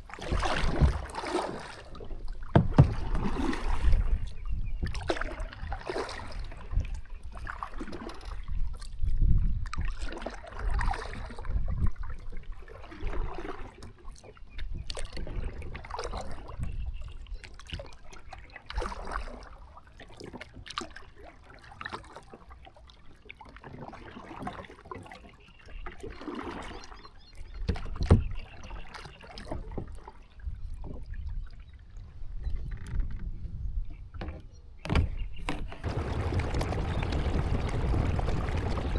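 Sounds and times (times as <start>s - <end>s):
kayak paddle splashing: 0.0s - 8.6s, 9.7s - 16.6s, 17.5s - 27.0s, 35.5s - 38.9s
loud knocks: 35.8s - 38.9s
low rumble: 35.8s - 38.9s.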